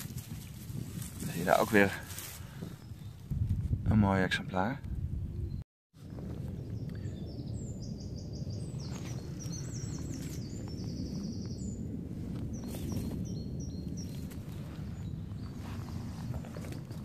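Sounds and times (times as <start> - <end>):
steady low rumble: 4.8 - 17.0
songbird singing trills: 6.5 - 11.8, 12.5 - 15.8.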